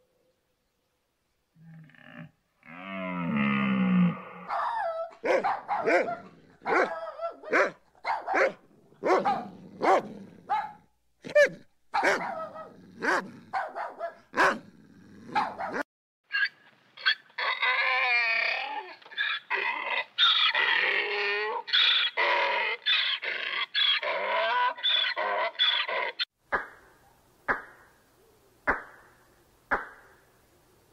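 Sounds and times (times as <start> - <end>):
dog barking: 4.5 - 14.6, 15.3 - 15.9
dog yelping and whining: 4.5 - 14.6.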